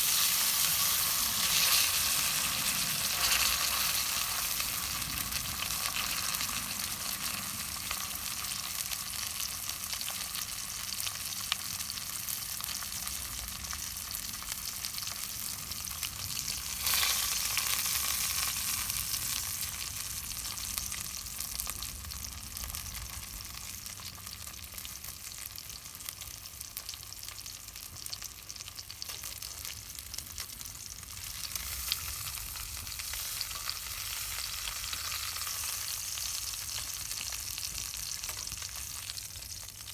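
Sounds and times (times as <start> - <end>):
campfire crackling and hissing: 0.0 - 24.9.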